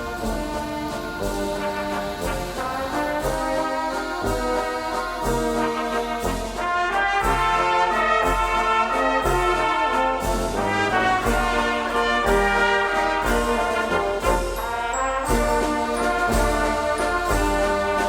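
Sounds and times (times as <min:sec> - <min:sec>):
brass band folk music: 0:00.0 - 0:18.0.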